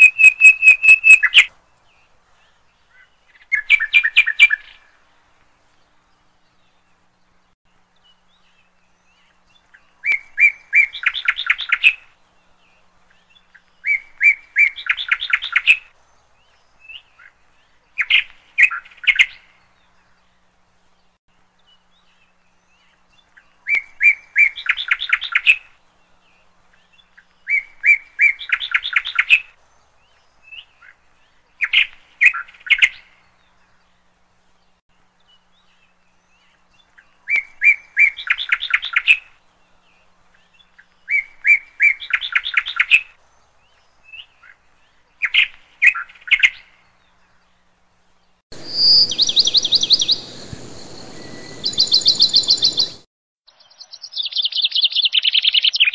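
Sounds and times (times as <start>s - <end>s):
songbird singing with trill: 0.0s - 5.0s, 5.8s - 55.9s
higher faster bird song: 0.0s - 55.9s
steady hiss: 47.9s - 52.7s.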